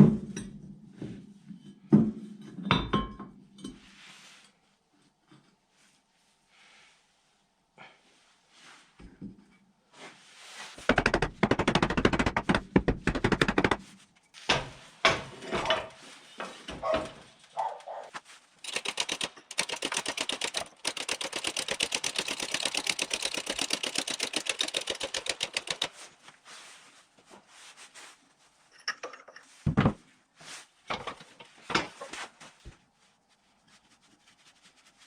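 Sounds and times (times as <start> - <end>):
rapid mechanical knocking: 18.6 - 25.9.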